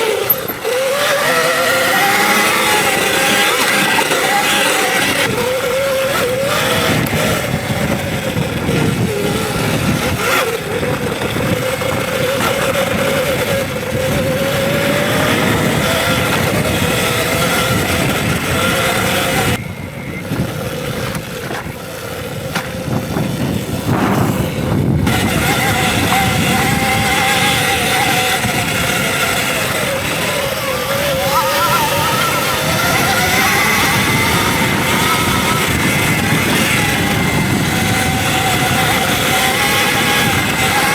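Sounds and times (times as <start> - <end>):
electric motor whine: 0.0 - 40.9
steady rushing noise: 0.0 - 40.9.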